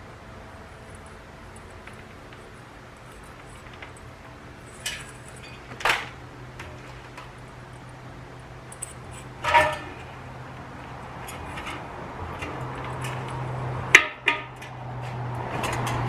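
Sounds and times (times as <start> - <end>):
steady low hum: 0.0 - 16.0
small metal parts clinking: 0.7 - 13.4.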